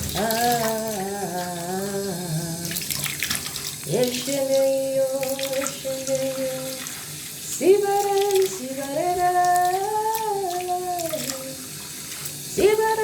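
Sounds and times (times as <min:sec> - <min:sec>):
person singing long held notes: 0:00.0 - 0:02.8.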